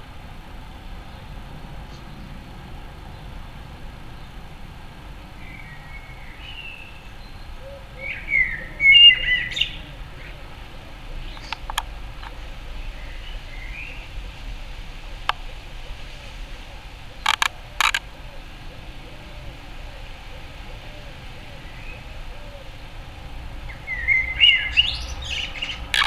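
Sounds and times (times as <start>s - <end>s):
songbird chirping: 0.0s - 26.0s
sharp clicks: 11.3s - 12.4s, 17.2s - 18.1s.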